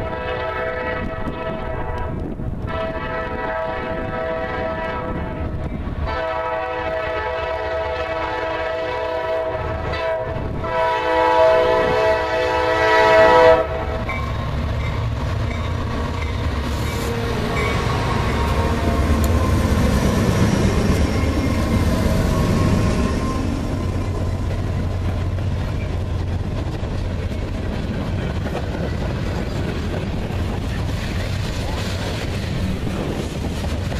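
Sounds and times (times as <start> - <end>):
locomotive horn blasts: 0.0 - 14.1, 16.9 - 20.3
train rolling past: 0.0 - 33.9.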